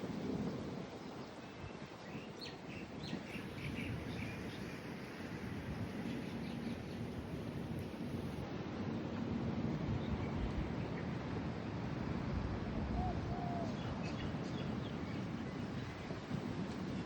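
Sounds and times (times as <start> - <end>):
bird chirps: 3.2 - 8.4.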